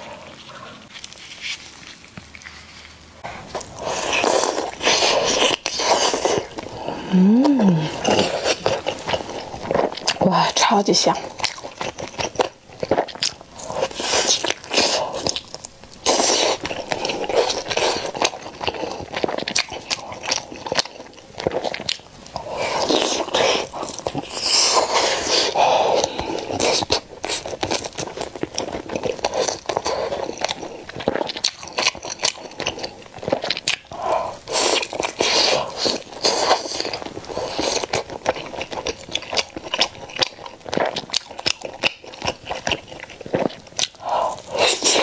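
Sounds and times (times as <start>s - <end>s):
wet biting and chewing: 11.2s - 45.0s.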